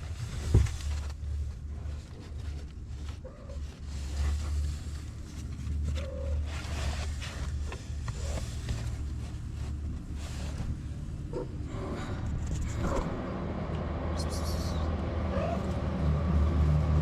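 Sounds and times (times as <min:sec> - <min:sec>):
rustling: 0:00.0 - 0:13.2
low rumble: 0:00.0 - 0:17.0
cat meowing: 0:15.3 - 0:15.7.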